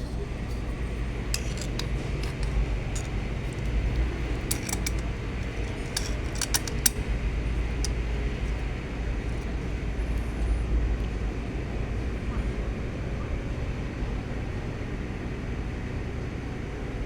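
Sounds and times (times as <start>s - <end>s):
metal tools clinking: 1.3s - 9.5s.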